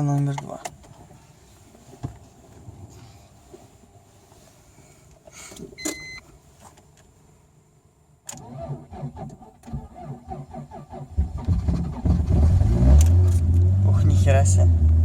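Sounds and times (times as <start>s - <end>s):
short electronic beep: 5.8s - 6.2s
starter motor cranking: 8.3s - 12.2s.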